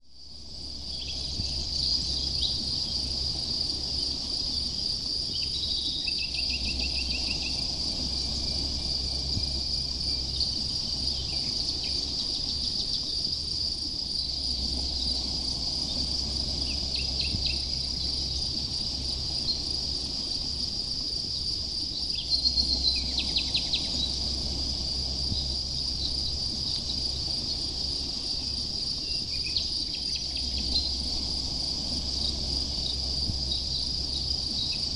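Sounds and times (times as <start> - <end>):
crickets chirring: 0.0 - 34.9.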